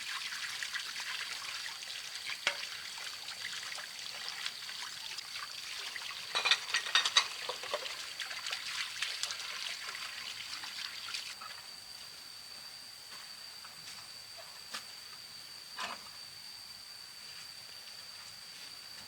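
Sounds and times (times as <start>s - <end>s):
water trickling and splashing: 0.0s - 11.4s.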